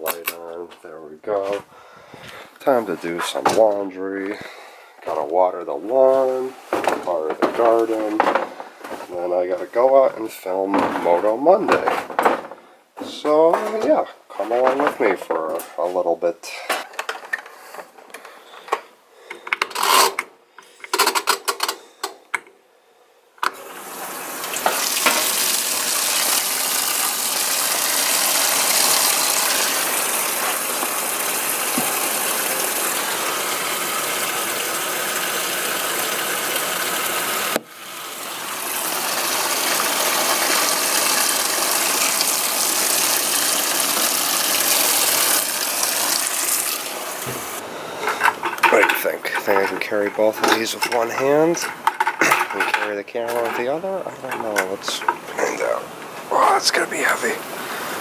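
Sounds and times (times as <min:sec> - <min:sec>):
water running from a tap: 0:23.5 - 0:47.6, 0:48.6 - 0:53.6, 0:54.2 - 0:55.8
clicking and rattling: 0:48.0 - 0:53.7.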